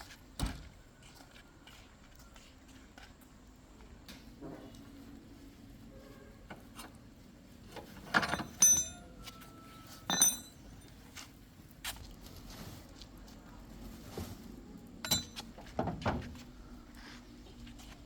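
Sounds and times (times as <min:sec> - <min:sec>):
metal hand tools clinking: 0:08.2 - 0:09.1, 0:10.1 - 0:10.7, 0:15.0 - 0:15.4.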